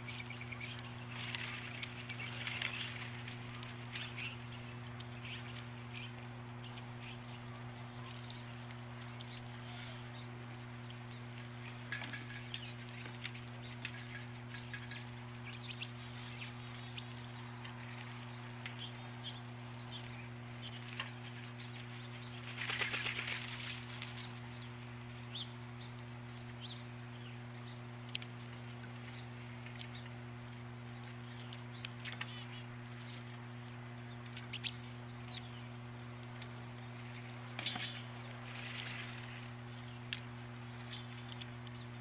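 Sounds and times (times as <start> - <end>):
small birds chirping: 0.0 - 42.0
steady low hum: 0.0 - 42.0
wing flapping: 22.3 - 24.4.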